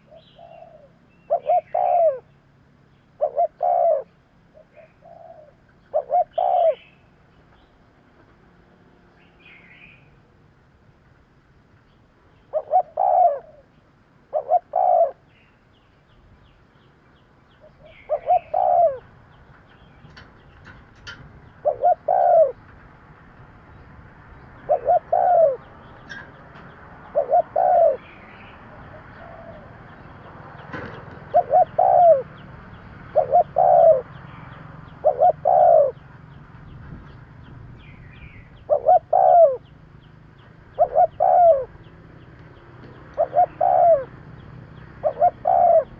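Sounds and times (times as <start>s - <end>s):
dove cooing: 0.0s - 2.3s, 3.2s - 6.9s, 12.5s - 13.7s, 14.3s - 15.3s, 17.6s - 19.1s, 21.0s - 22.6s, 24.6s - 26.4s, 27.0s - 32.4s, 33.0s - 36.0s, 38.2s - 39.7s, 40.6s - 41.9s, 42.8s - 45.9s.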